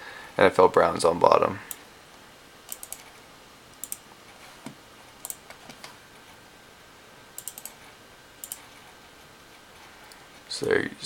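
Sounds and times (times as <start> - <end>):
computer clicks: 2.7 - 3.1, 3.7 - 4.1, 5.2 - 5.8, 7.4 - 7.8, 8.4 - 8.8.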